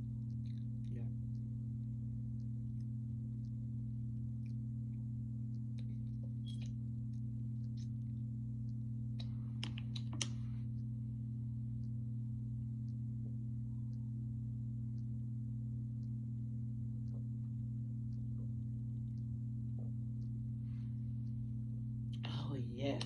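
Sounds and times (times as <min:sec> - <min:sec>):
steady low hum: 0:00.0 - 0:23.0
clicks and taps: 0:08.6 - 0:10.5.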